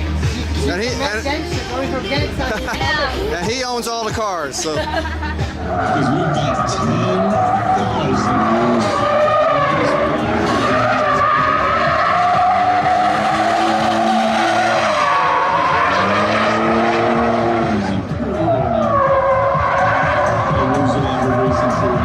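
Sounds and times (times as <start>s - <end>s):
car engine revving: 5.0s - 22.0s
car tyres squealing: 5.4s - 22.0s.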